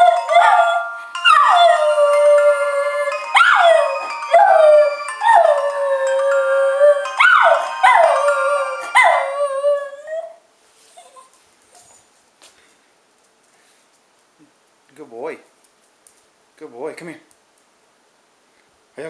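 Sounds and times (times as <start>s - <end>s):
phone ringtone electronic tones: 0.0s - 9.5s
dog howling: 0.0s - 10.4s.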